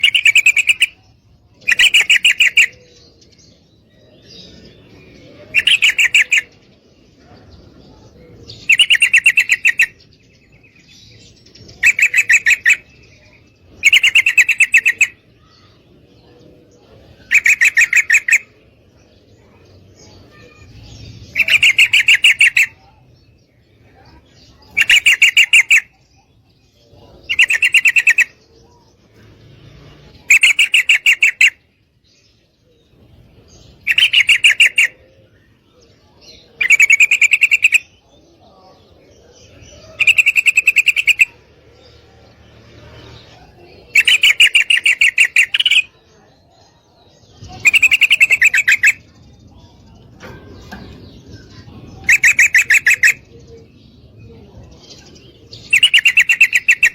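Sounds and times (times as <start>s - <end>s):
bird chattering call: 0.0s - 3.1s, 5.4s - 6.7s, 8.5s - 10.1s, 11.6s - 15.8s, 17.1s - 18.6s, 20.0s - 23.0s, 23.9s - 26.3s, 27.1s - 28.5s, 30.1s - 31.6s, 33.7s - 35.6s, 36.6s - 38.0s, 39.4s - 42.0s, 43.0s - 46.3s, 47.2s - 49.2s, 50.0s - 53.8s, 54.7s - 56.9s.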